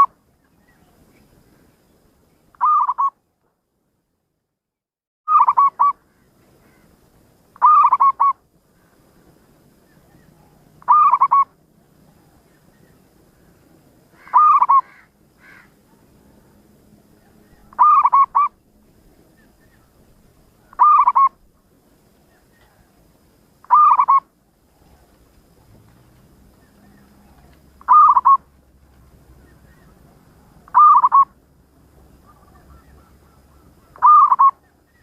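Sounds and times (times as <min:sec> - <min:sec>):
dove cooing: 0:02.6 - 0:03.1, 0:05.3 - 0:06.0, 0:07.6 - 0:08.4, 0:10.1 - 0:12.4, 0:14.2 - 0:16.3, 0:17.2 - 0:18.6, 0:20.6 - 0:21.5, 0:23.6 - 0:25.8, 0:26.5 - 0:28.5, 0:29.3 - 0:31.4, 0:32.0 - 0:35.0.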